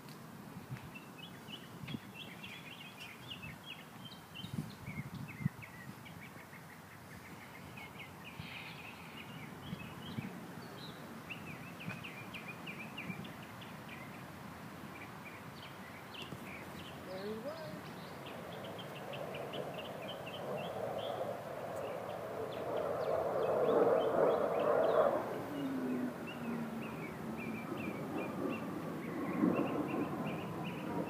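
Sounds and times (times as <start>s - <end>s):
small birds chirping: 0.7s - 31.0s.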